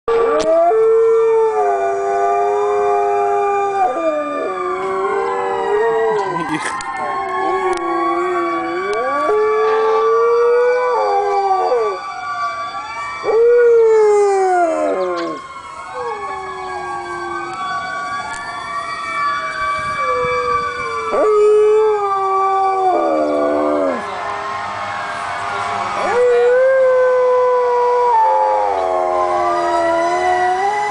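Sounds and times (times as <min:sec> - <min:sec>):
fire truck siren wailing: 0:00.1 - 0:30.9
dog howling: 0:13.2 - 0:17.6, 0:26.0 - 0:30.9.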